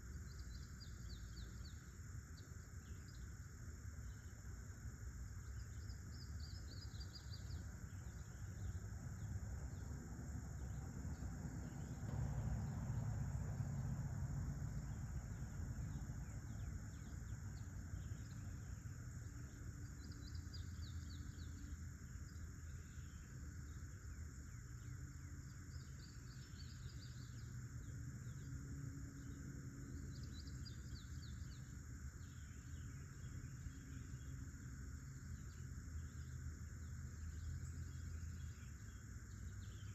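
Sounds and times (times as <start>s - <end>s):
crickets chirping: 0.0s - 39.9s
bird chirping: 5.4s - 14.0s, 14.7s - 39.9s.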